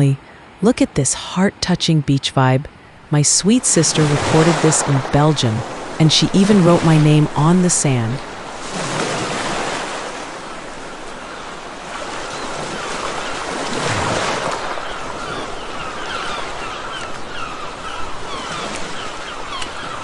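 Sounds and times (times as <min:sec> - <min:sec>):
sea surf breaking: 0:03.3 - 0:19.0.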